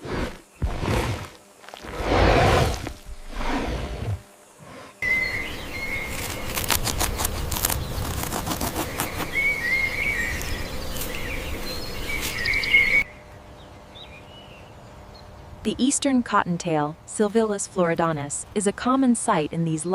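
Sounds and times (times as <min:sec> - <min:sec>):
birds chirping: 0:05.0 - 0:15.6.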